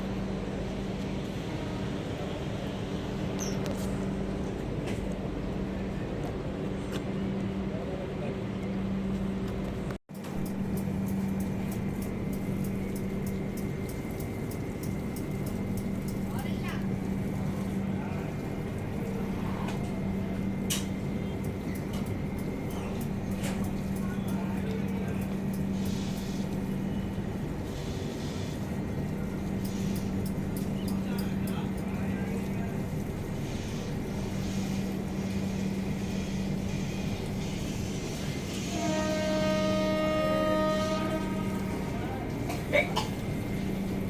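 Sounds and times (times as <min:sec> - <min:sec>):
low mechanical train hum: 0:00.0 - 0:44.0
train horn blast: 0:38.5 - 0:42.6.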